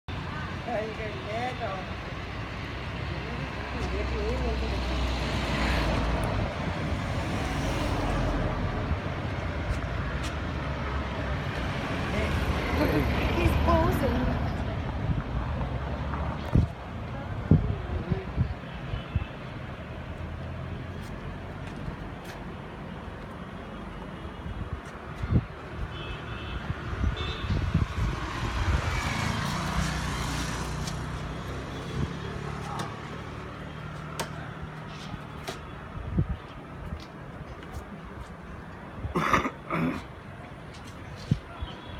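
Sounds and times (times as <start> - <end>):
road traffic: 0.0 - 41.9
vehicle passing: 27.6 - 35.2.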